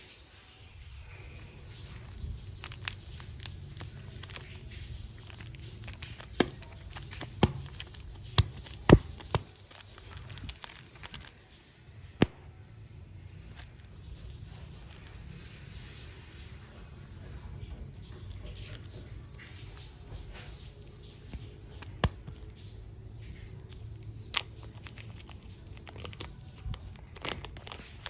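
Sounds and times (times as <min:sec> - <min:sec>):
plastic packaging crinkling: 0:01.0 - 0:28.0
sharp clicks and snaps: 0:05.2 - 0:11.3, 0:21.3 - 0:22.6.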